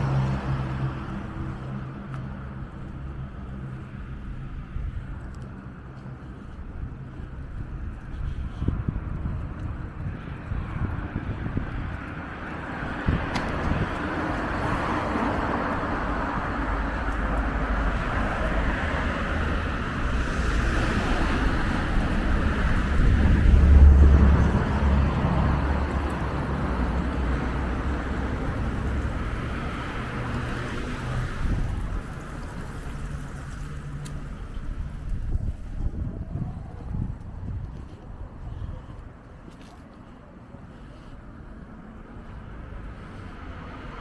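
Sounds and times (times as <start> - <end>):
city street traffic: 0.0 - 44.0
wind buffeting microphone: 0.0 - 44.0.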